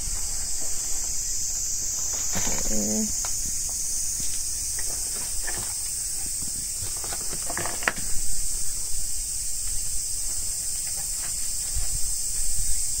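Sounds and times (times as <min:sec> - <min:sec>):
insect chorus drone: 0:00.0 - 0:13.0.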